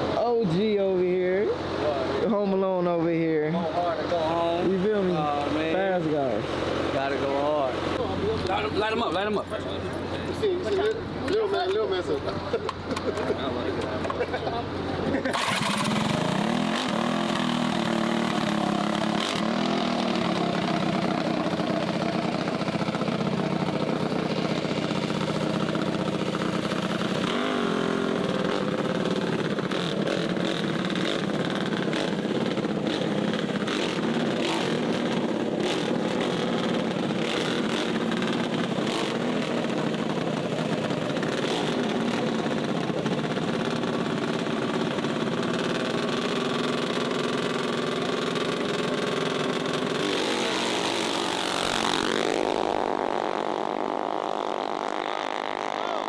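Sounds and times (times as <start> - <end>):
mini bike engines humming: 4.2 - 56.0.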